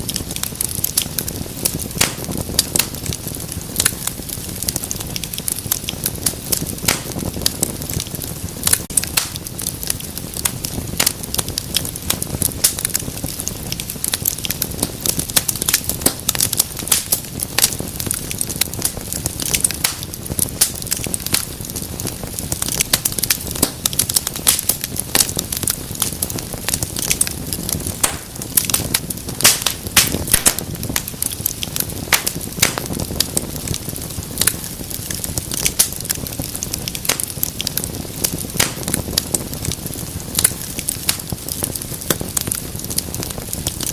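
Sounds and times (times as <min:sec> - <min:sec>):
low rush of burning flames: 0:00.0 - 0:43.9
wood fire crackling: 0:00.0 - 0:43.9.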